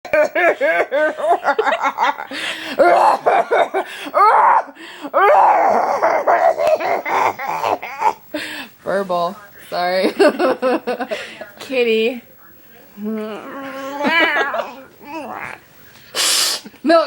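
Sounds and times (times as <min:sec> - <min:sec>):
people laughing hard: 0:00.1 - 0:04.4.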